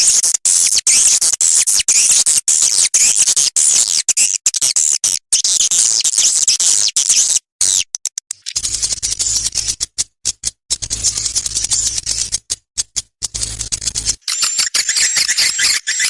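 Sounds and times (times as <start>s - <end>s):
swiftlet twittering chirps: 14.2s - 16.0s.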